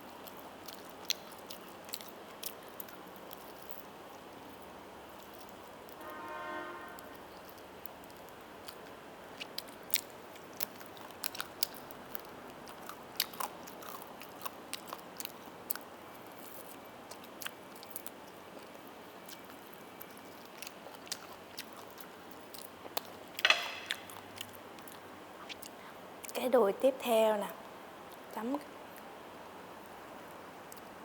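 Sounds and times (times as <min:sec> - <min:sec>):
person biting and chewing: 0:07.5 - 0:25.8.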